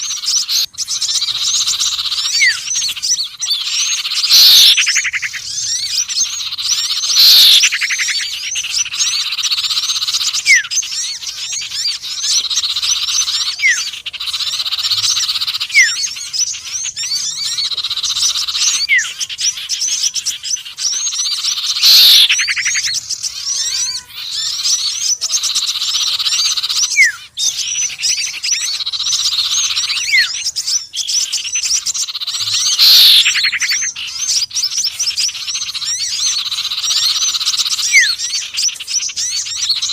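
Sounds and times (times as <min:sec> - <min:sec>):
downward-sweeping bird calls: 0:00.0 - 0:39.9
songbirds chattering: 0:00.0 - 0:39.9
short rising whistles: 0:07.1 - 0:07.7, 0:21.8 - 0:22.4, 0:32.7 - 0:33.5.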